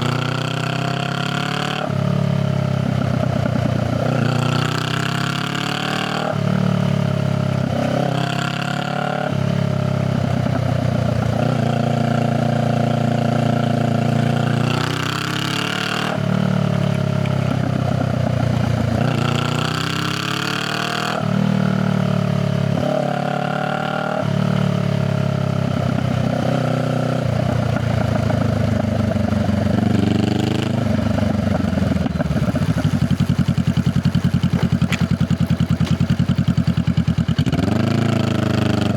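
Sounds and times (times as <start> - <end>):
motorcycle engine accelerating: 0.0 - 38.9
motorcycle engine idling: 2.0 - 5.1, 16.2 - 19.8, 24.6 - 38.9.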